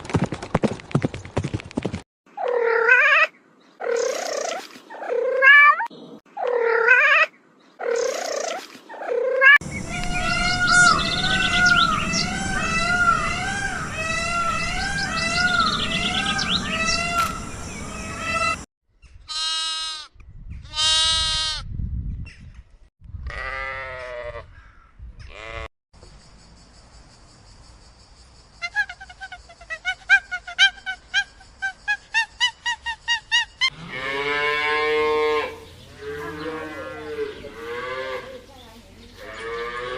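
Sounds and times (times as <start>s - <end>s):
chorus of farm animal calls: 9.0s - 18.6s, 33.7s - 39.9s
high bird chirps: 9.6s - 19.2s
long wavering bleats: 33.7s - 38.5s, 39.2s - 39.9s.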